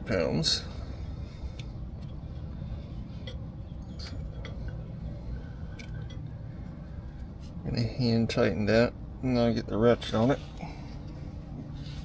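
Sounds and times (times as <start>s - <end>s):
low background rumble: 0.0s - 12.0s
light clicks of bolt threading: 1.4s - 2.2s, 5.6s - 6.3s.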